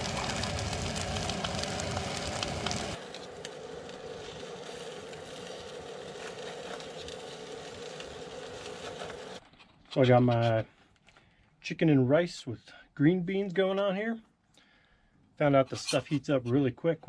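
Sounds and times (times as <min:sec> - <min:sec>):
camp stove burner hissing: 0:00.0 - 0:09.4.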